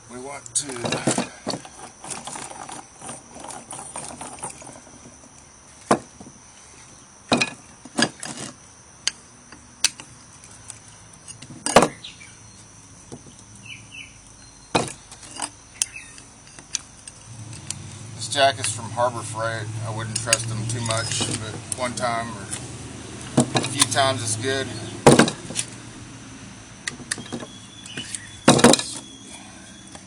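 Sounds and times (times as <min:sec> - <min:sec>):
wooden blocks knocking: 0:25.0 - 0:25.6, 0:26.9 - 0:29.0.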